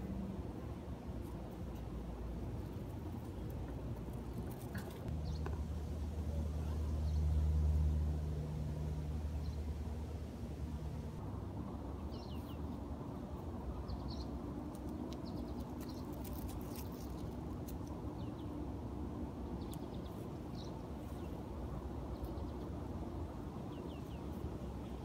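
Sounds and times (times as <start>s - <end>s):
small birds chirping: 2.6s - 5.6s, 12.0s - 25.0s.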